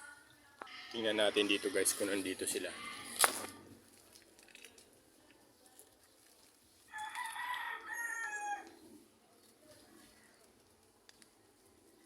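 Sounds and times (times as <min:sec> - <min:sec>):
rooster crowing: 0:06.9 - 0:08.7.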